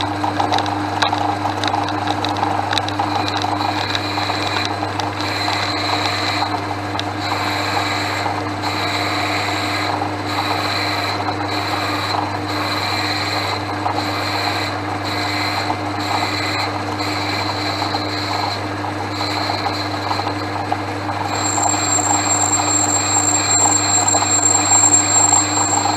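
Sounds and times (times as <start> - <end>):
lathe motor hum: 21.3 - 25.9
lathe tool cutting metal: 21.3 - 25.9.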